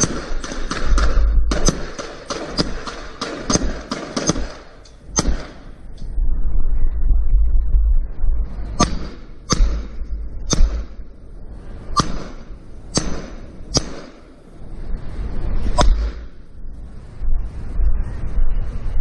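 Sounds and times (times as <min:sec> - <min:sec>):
sharp cracks: 0:00.0 - 0:06.2, 0:08.8 - 0:11.2, 0:11.9 - 0:14.5, 0:15.7 - 0:16.5
steady low rumble: 0:00.0 - 0:19.0.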